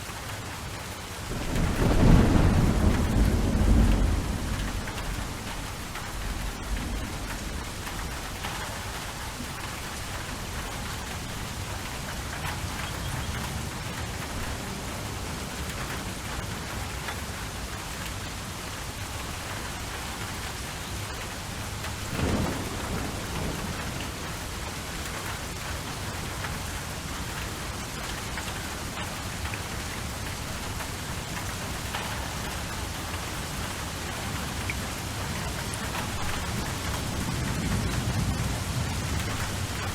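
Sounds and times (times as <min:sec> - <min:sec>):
steady rain falling: 0:00.0 - 0:39.9
thunder rumbling: 0:01.3 - 0:11.8, 0:21.9 - 0:25.3, 0:34.1 - 0:39.9.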